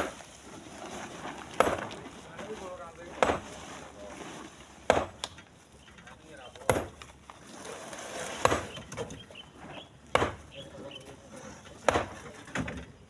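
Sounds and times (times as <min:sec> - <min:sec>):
stones landing in truck bed: 0:01.3 - 0:02.0, 0:08.4 - 0:09.2, 0:11.8 - 0:13.0.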